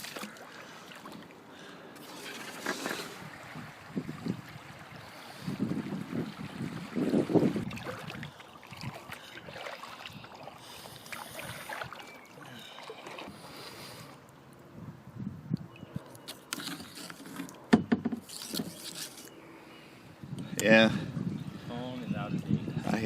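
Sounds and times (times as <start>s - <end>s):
paddle splashing in water: 0.0s - 1.4s, 2.0s - 13.6s.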